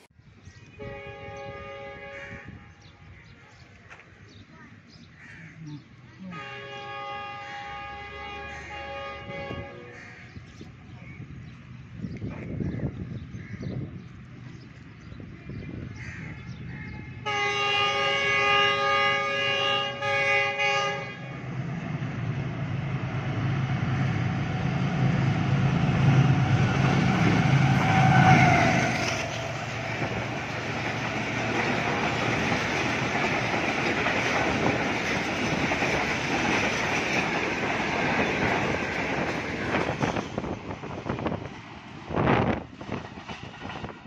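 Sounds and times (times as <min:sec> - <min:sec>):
locomotive horn: 0:00.8 - 0:02.7, 0:06.2 - 0:10.1, 0:17.2 - 0:21.5, 0:26.2 - 0:30.2
locomotive engine rumble: 0:05.7 - 0:44.0
train coaches clattering past: 0:17.2 - 0:44.0.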